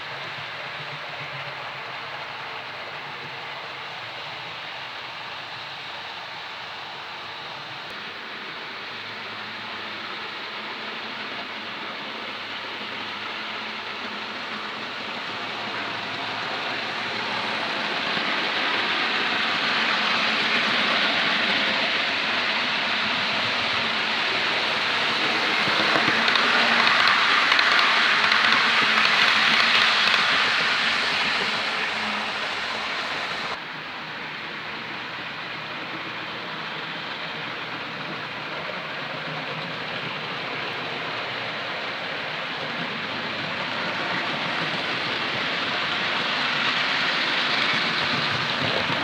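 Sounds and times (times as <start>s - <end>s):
model train rattling on track: 0.0s - 49.0s
model train motor whirring: 15.7s - 33.6s.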